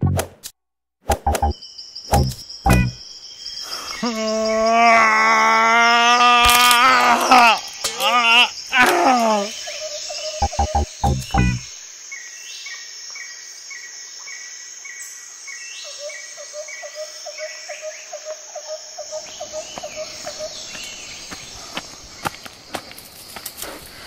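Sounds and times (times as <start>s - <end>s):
high chirps: 1.1s - 3.0s, 10.3s - 11.7s
high insect chorus: 1.5s - 24.0s
lower repeating call: 10.4s - 11.7s.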